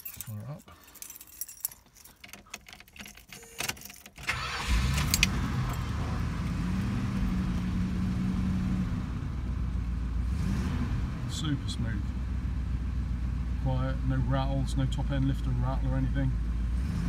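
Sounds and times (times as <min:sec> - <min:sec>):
clicks and key rattles: 0:00.0 - 0:04.2
car engine starting and idling: 0:02.5 - 0:17.0.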